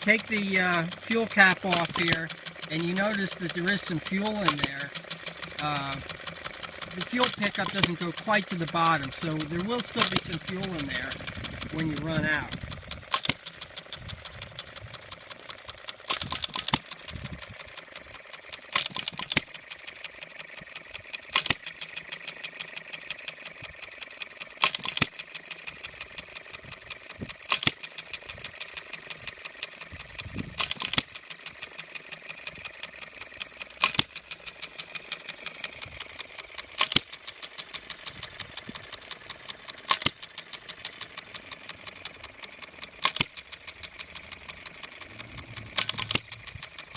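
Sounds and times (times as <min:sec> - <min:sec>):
engine firing with sharp bangs: 0:00.0 - 0:46.9
light clicking of valve gear: 0:00.0 - 0:46.9.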